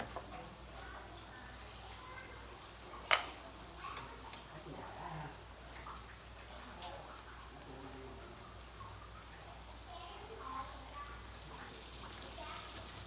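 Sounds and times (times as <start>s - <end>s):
batter sizzling in hot oil: 0.0s - 13.0s.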